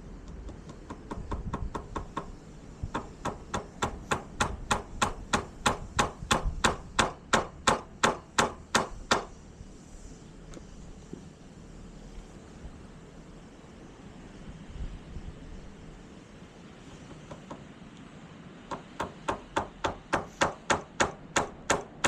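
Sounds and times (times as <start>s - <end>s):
hammer driving nails: 0.2s - 9.3s, 18.7s - 22.0s.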